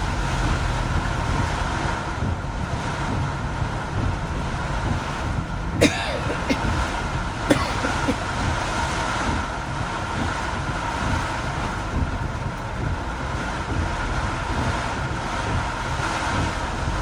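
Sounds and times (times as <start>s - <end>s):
heavy rain: 0.0s - 17.0s
vehicle road noise: 0.0s - 17.0s.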